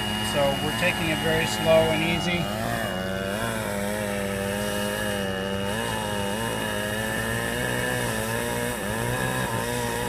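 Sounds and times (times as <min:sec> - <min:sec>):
chainsaw cutting wood: 0:00.0 - 0:10.0.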